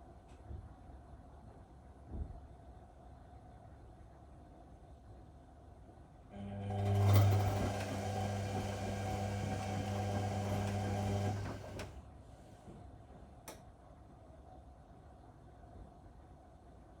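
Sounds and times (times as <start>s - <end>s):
washing machine motor humming: 6.4s - 12.0s.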